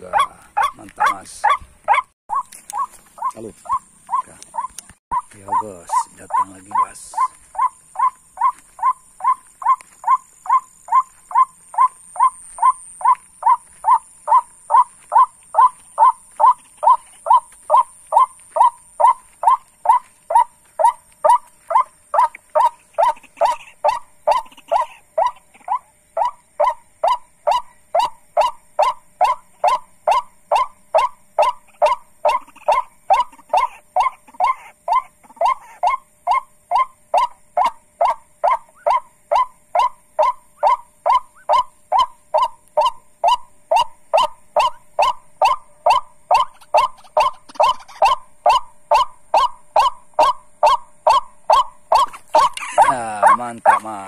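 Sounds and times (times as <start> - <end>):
bird call repeated notes: 0.0 - 54.0.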